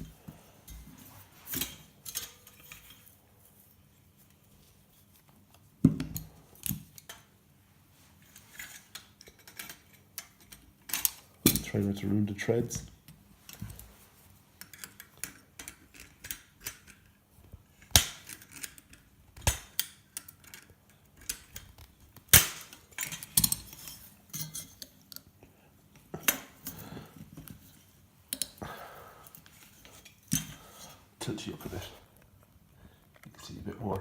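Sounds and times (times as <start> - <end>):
metal parts clinking and scraping: 1.5 - 3.2, 22.3 - 25.2, 29.3 - 31.0.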